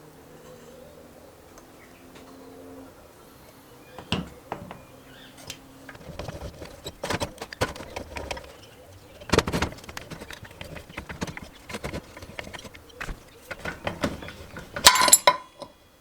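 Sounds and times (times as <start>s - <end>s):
metal tools clicking and knocking: 5.9s - 15.8s.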